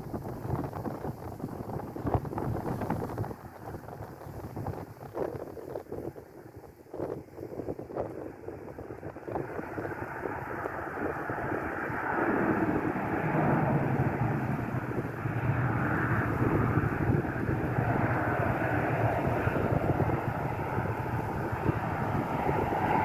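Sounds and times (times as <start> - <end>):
jet engines roaring: 8.4 - 23.0.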